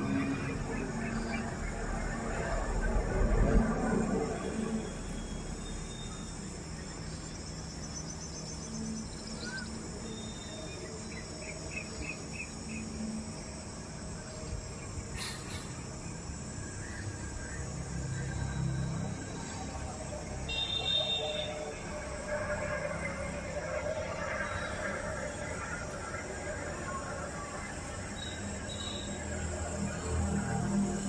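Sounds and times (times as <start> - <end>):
steady low rumble: 0.0 - 5.9
insects: 0.0 - 31.0.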